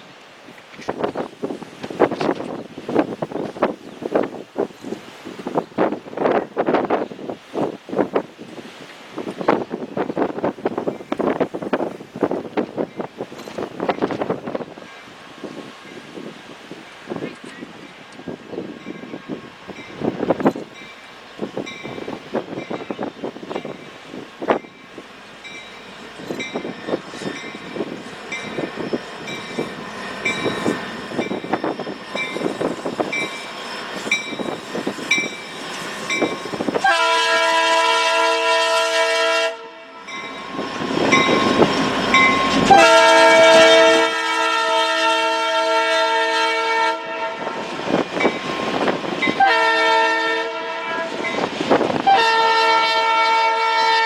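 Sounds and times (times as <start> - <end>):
train wheels clicking on rails: 0.1 - 37.2, 40.0 - 44.1
locomotive air horn blasts: 36.6 - 40.2, 42.4 - 47.7, 48.6 - 54.0.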